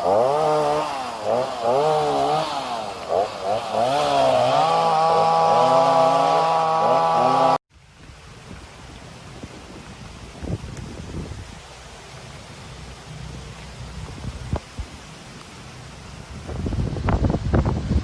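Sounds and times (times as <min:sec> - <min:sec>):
small engine revving: 0:00.0 - 0:07.6.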